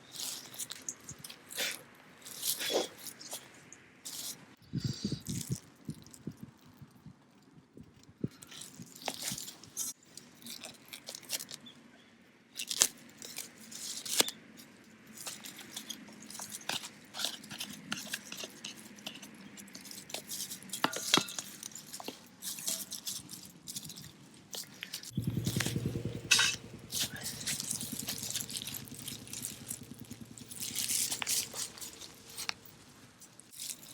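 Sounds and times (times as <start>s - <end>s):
wood fire crackling: 25.1s - 33.6s.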